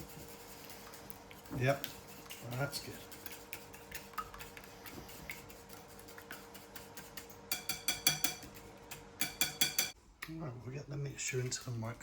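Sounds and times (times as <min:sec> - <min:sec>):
whisk clinking against bowl: 0:01.5 - 0:10.0.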